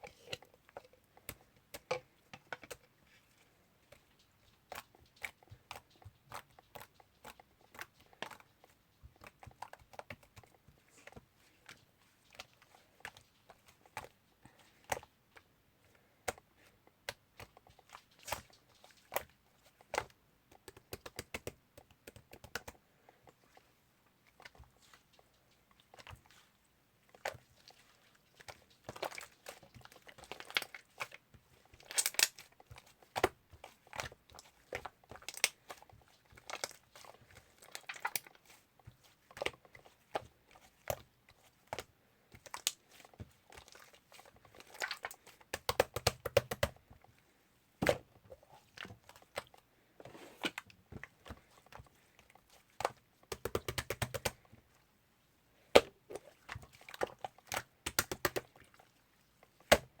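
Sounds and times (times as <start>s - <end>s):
sharp clicks and taps: 20.0s - 22.8s, 52.8s - 54.4s, 57.6s - 58.5s.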